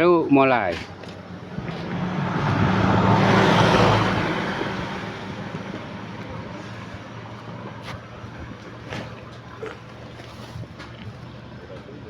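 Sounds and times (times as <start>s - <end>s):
low engine hum: 0.8s - 12.0s
vehicle passing by: 1.0s - 9.2s.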